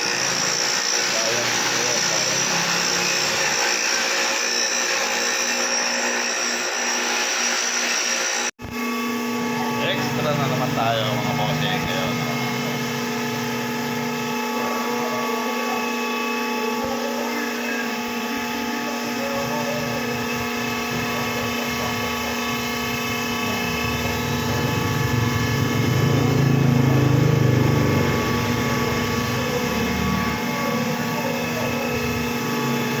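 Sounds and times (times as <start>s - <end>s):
machine humming and whining: 0.0s - 33.0s
deep rumble: 23.2s - 28.8s.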